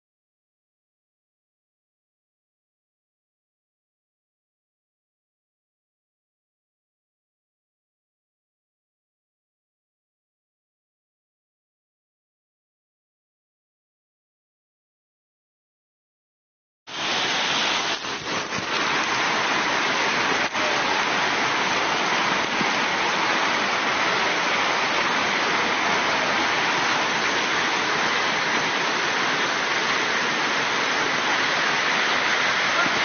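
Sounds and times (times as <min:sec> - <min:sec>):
water rushing: 0:16.9 - 0:33.0.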